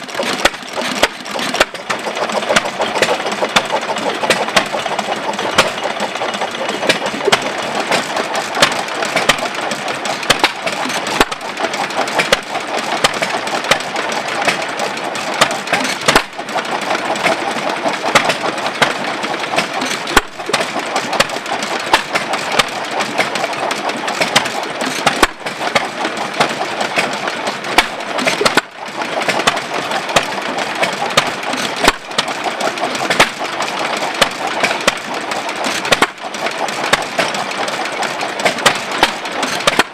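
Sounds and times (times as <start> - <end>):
hit-and-miss gas engine running: 0.0 - 39.9.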